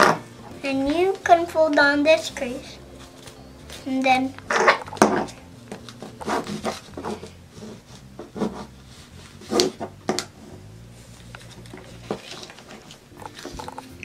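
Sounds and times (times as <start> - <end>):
paper rustling and crinkling: 3.0 - 10.3, 11.1 - 14.0.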